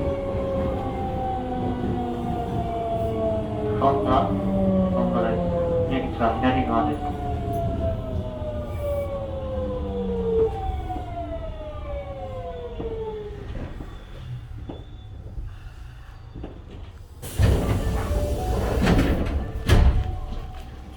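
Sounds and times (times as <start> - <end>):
train inverter whining: 0.0 - 20.9
sliding doors opening: 17.1 - 20.9.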